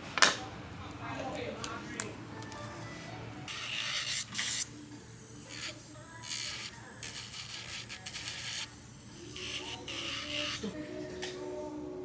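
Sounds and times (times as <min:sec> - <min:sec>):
nail file rasping on fingernails: 0:03.5 - 0:10.8.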